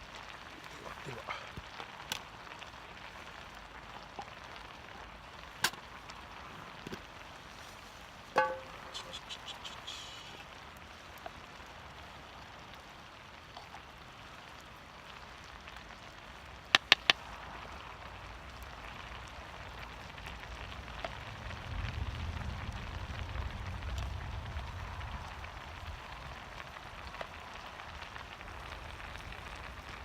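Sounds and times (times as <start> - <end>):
fire hissing: 0.0 - 30.0
wood fire crackling: 0.0 - 30.0
sharp snaps: 16.7 - 17.2.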